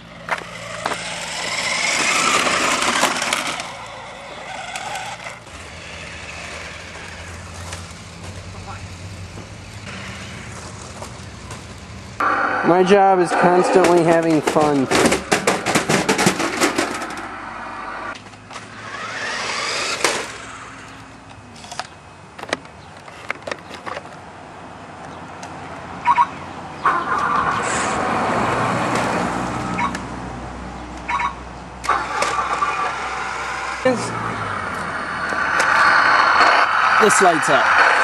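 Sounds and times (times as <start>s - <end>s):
tyres rolling: 0.0s - 12.2s, 13.1s - 24.2s, 31.8s - 38.0s
electric motor whining: 0.2s - 10.6s, 17.7s - 21.0s, 31.9s - 38.0s
rc car clicks and rattles: 0.3s - 7.9s, 18.5s - 20.6s, 31.8s - 33.8s.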